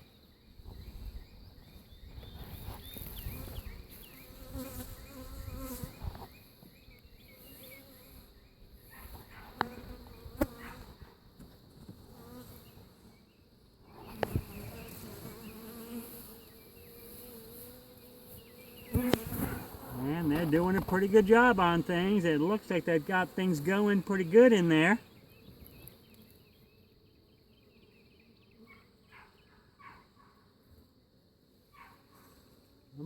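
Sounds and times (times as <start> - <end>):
honeybees buzzing: 0.2 - 8.7, 12.0 - 28.9.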